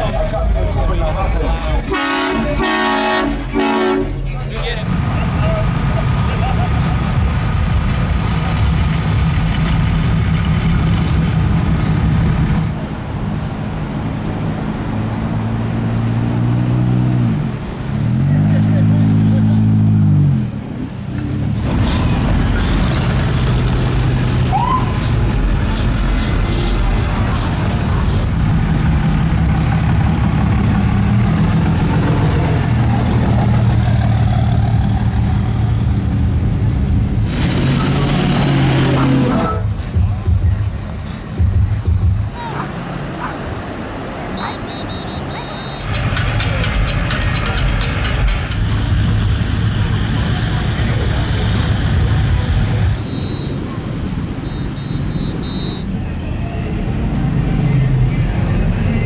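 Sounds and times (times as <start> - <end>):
truck engines in traffic: 0.0 - 59.0
low steady engine note: 39.2 - 59.0.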